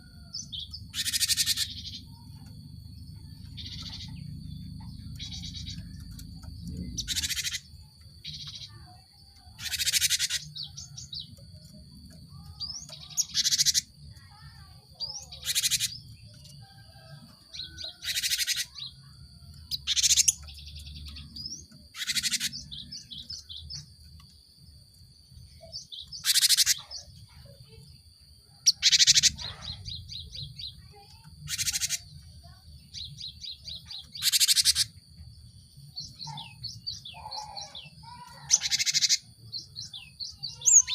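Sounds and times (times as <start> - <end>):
bird harsh calls: 0.0 - 2.5, 3.2 - 8.8, 9.5 - 11.1, 12.4 - 16.0, 16.9 - 19.0, 19.7 - 23.5, 25.7 - 27.1, 28.6 - 32.6, 33.5 - 35.0, 36.0 - 40.9.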